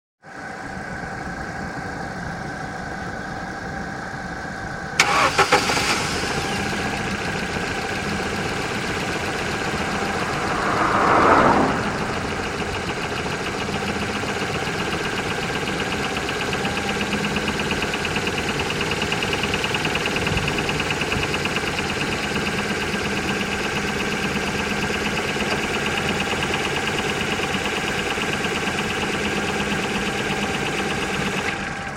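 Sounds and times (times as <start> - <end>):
engine revving: 5.0 - 17.0
car engine knocking: 6.6 - 31.9.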